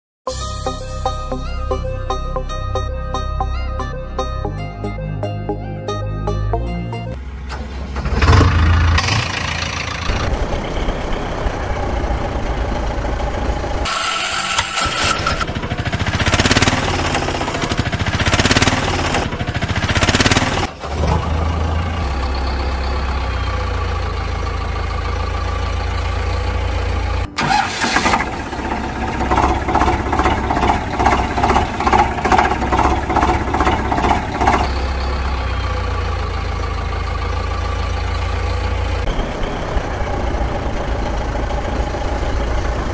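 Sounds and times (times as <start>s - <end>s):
engine idling: 7.2s - 42.9s
fast even engine chugging: 8.2s - 22.1s, 27.4s - 42.9s.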